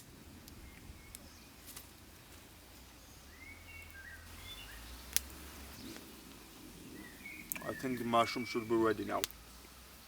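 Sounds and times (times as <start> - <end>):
bird chirps: 2.8 - 5.1, 6.9 - 9.0.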